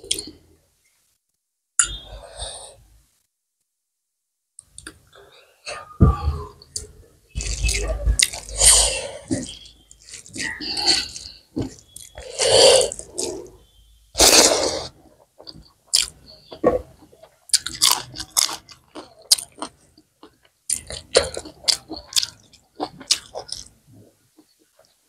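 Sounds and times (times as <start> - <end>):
person chewing food: 6.6 - 13.6, 14.2 - 25.0.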